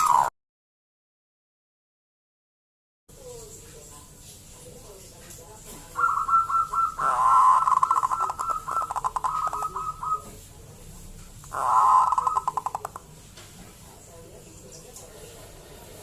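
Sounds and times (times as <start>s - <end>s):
dove cooing: 0.0s - 0.3s, 5.9s - 10.4s, 11.5s - 13.0s.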